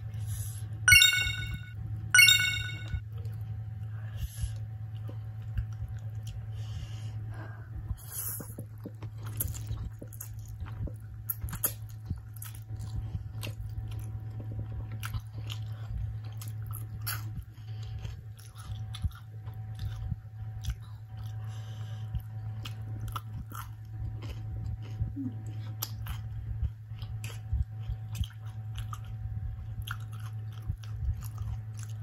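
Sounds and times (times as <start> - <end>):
steady low hum: 0.0 - 32.0
biting and chewing food: 7.8 - 32.0.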